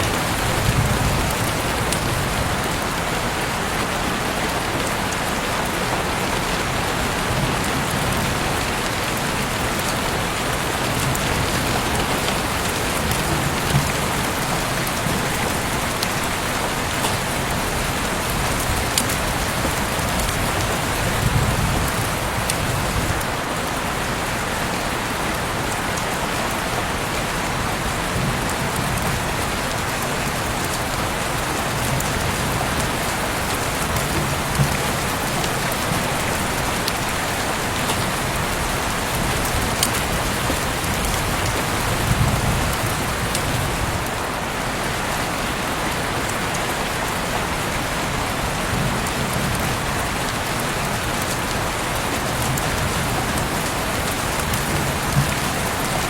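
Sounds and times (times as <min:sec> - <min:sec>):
heavy rain hiss: 0:00.0 - 0:56.0
sharp raindrop taps: 0:31.7 - 0:43.6.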